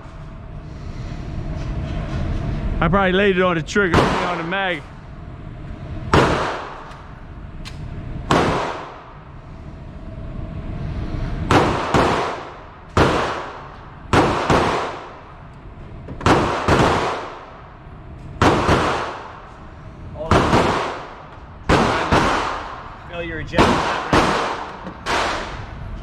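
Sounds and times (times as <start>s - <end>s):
handgun shots with echo: 6.1s - 7.0s, 8.3s - 9.0s, 11.5s - 15.2s, 16.2s - 17.5s, 18.4s - 19.3s, 20.3s - 22.8s, 23.6s - 25.6s.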